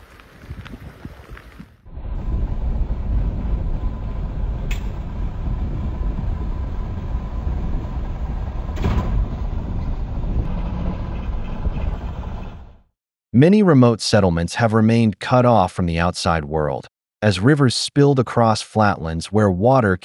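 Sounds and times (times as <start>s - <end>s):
heavy low rumbling: 1.9s - 12.9s.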